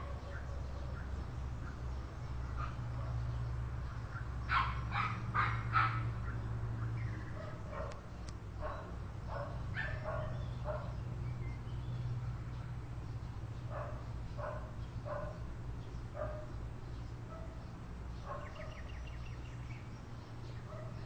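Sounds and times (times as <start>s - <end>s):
dog barking: 4.1s - 6.1s, 7.4s - 8.0s, 8.6s - 11.0s, 13.7s - 15.4s, 16.2s - 16.5s, 18.2s - 18.9s, 20.7s - 21.0s.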